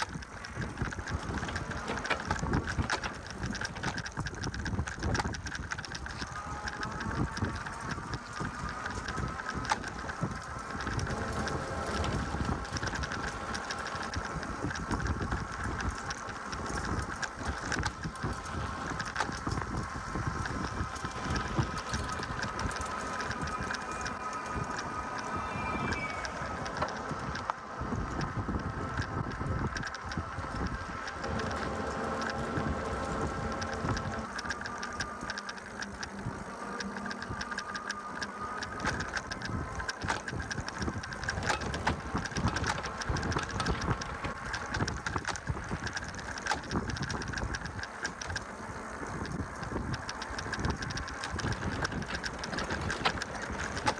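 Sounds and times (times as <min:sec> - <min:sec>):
tyre rolling noise: 0:00.0 - 0:27.6, 0:38.6 - 0:53.9
electric motor whine: 0:00.0 - 0:53.9
wind rumble on microphone: 0:00.0 - 0:53.9.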